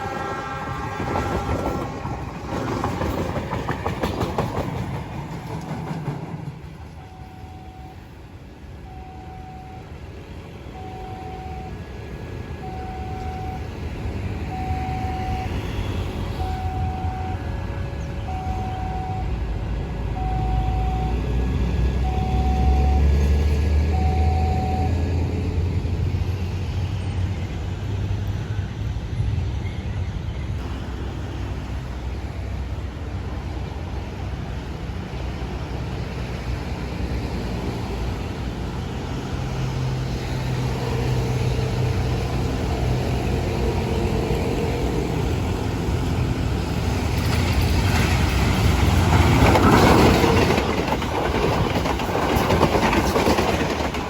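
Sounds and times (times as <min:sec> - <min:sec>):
heavy vehicles rumbling past: 0:06.2 - 0:29.6, 0:30.5 - 0:54.0.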